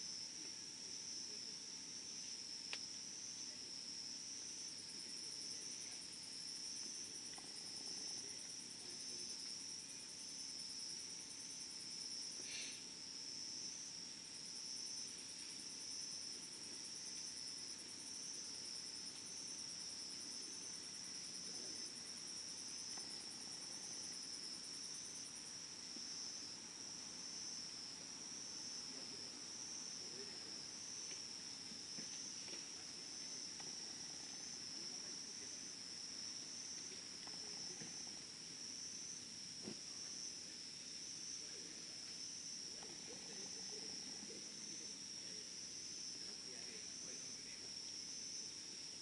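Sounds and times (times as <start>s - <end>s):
crickets chirring: 0.0s - 49.0s
higher pulsing insect trill: 0.0s - 49.0s
faint click: 2.7s - 2.9s.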